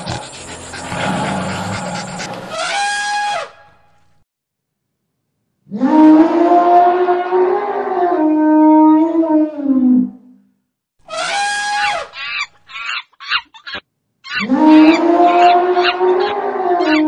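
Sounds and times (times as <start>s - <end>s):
elephant trumpeting: 0.0s - 3.6s, 14.3s - 17.0s.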